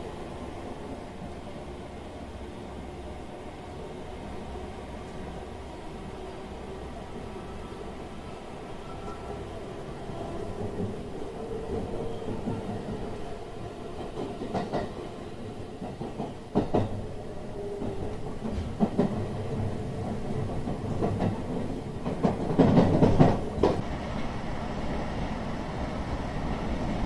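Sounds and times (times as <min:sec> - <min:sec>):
train wheels rumbling: 0:08.9 - 0:27.0
wheels clacking over rail joints: 0:20.0 - 0:24.3.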